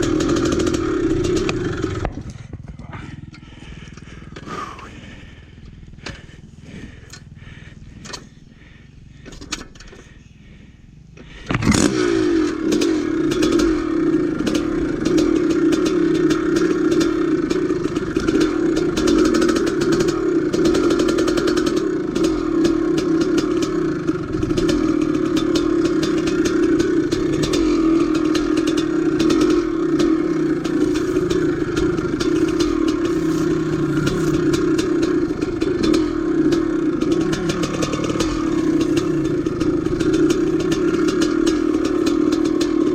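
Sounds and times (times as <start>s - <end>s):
dirt bike engine running: 0.0s - 42.9s
rattly clatter: 12.5s - 42.9s.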